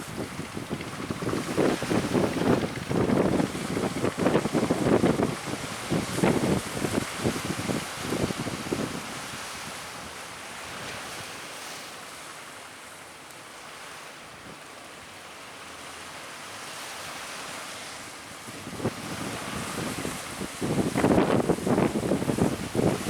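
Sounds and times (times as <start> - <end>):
wind buffeting microphone: 0.0 - 10.1, 18.5 - 23.0
strong wind: 0.0 - 11.3, 18.4 - 23.0
sea surf rushing: 0.0 - 23.0.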